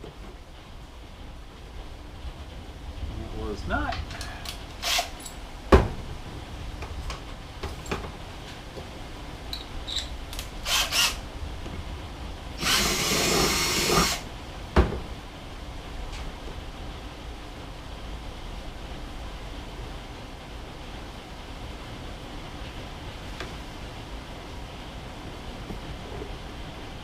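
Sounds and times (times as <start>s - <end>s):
power drill running: 4.8s - 5.1s, 10.6s - 11.2s, 12.6s - 14.2s.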